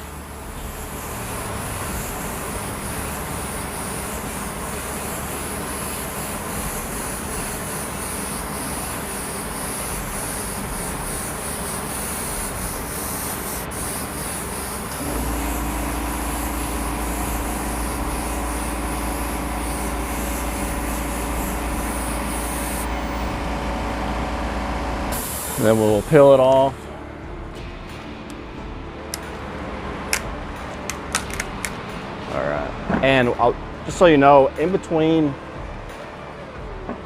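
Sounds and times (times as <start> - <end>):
airbrush hissing: 0.0 - 26.7
low hum with held tones: 0.0 - 30.9.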